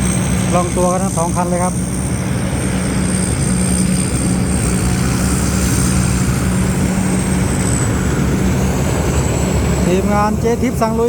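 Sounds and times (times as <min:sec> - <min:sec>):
combine harvester engines droning: 0:00.0 - 0:11.0.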